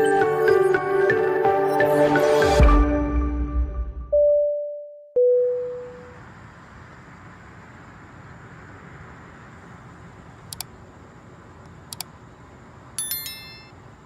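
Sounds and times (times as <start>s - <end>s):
low rumble and hiss: 5.5s - 14.0s.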